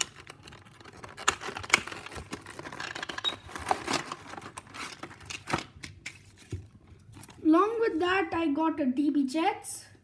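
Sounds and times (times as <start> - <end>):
packaging rustling: 0.0 - 7.5.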